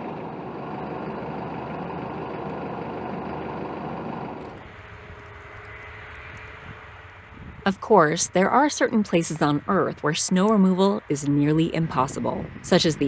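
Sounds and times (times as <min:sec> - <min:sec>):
pushback truck engine running: 0:00.0 - 0:04.7
quiet steady hum: 0:07.7 - 0:13.0.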